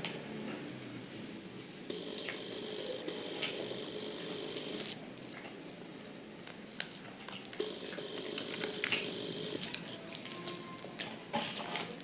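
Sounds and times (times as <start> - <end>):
person chewing wetly: 6.8 - 11.9.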